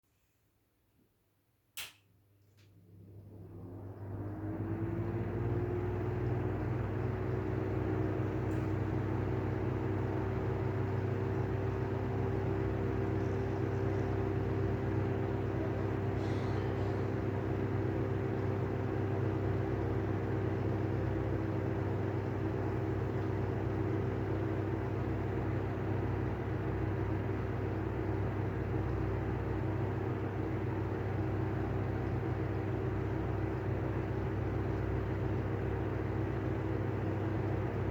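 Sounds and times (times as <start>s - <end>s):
exhaust fan humming and grinding: 2.7s - 37.9s.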